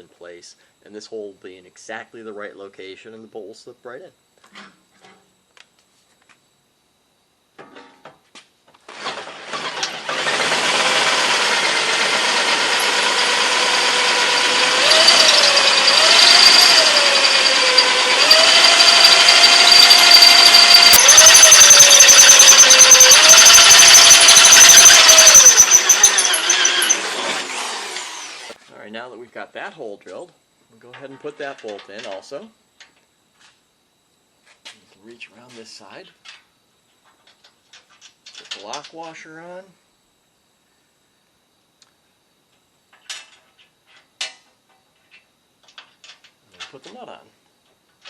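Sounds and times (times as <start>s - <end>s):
electric drill boring through metal: 8.9s - 28.6s.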